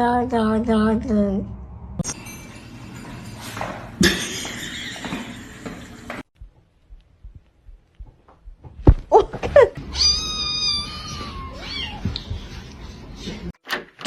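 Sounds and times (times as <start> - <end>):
cat meowing: 9.9 - 12.2.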